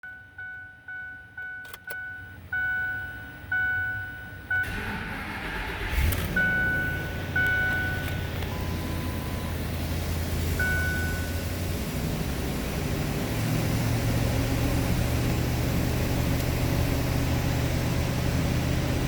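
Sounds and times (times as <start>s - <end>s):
truck warning chime dinging: 0.0s - 12.3s
engine cranking and idling: 1.4s - 19.0s.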